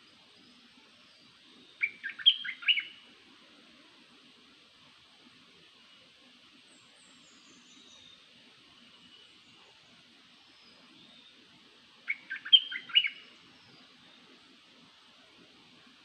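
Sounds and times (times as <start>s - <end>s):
faint high hiss: 0.0s - 16.0s
small bird chirping: 0.4s - 3.0s, 12.1s - 14.0s.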